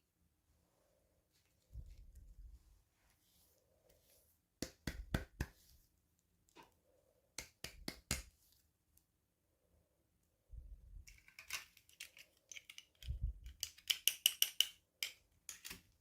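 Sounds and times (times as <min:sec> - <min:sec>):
toys and packaging clicking: 0:11.0 - 0:16.0.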